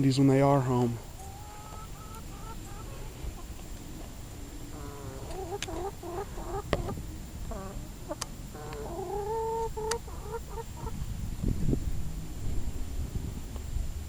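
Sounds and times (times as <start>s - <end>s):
chickens clucking: 0.2s - 11.1s.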